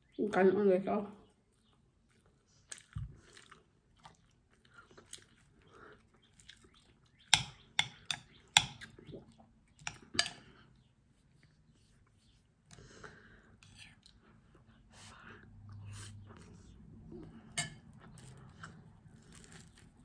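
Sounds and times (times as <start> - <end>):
close-up chewing: 1.3 - 10.6.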